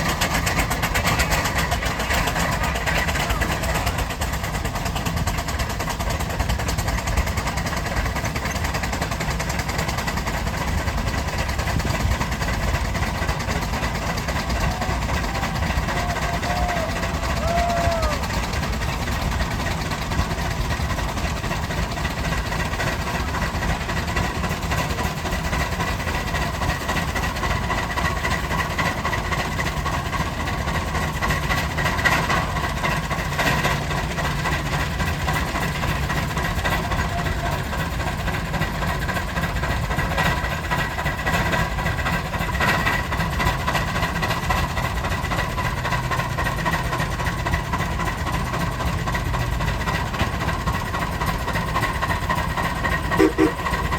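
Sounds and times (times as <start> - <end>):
steam traction engine running: 0.0 - 53.9
faint machinery tones: 52.8 - 53.9.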